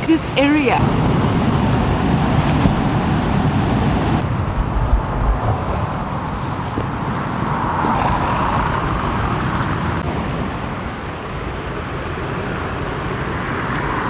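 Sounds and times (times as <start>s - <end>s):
road traffic rumble: 0.0s - 14.0s
car passing: 0.8s - 14.0s.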